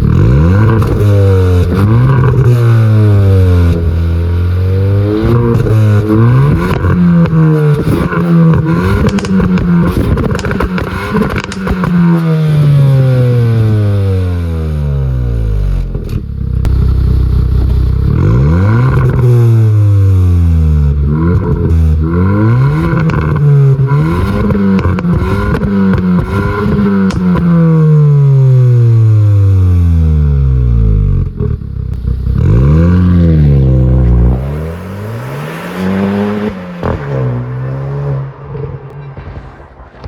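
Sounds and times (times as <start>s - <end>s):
exhaust pops and crackles: 0.0s - 12.3s, 15.6s - 29.3s, 30.6s - 34.6s
car engine revving: 0.0s - 40.0s.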